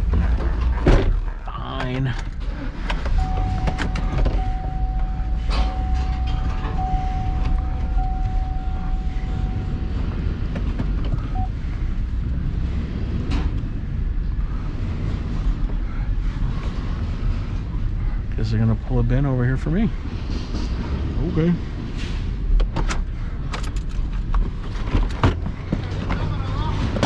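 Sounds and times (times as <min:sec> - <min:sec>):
truck engine running: 0:00.0 - 0:27.0
steady high tone: 0:03.2 - 0:10.5.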